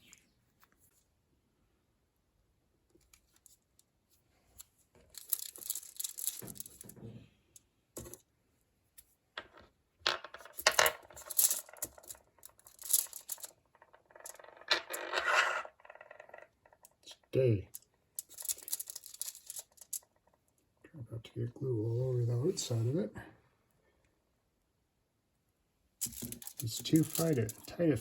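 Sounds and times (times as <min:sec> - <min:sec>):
small parts scraping and rustling: 0:03.0 - 0:08.3, 0:09.0 - 0:20.5, 0:26.0 - 0:28.0.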